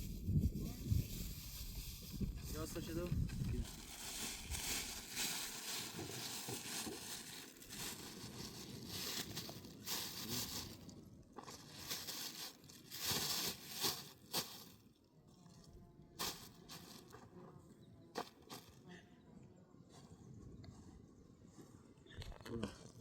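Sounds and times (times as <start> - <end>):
rustling and crackling: 0.0 - 14.8, 16.2 - 17.4.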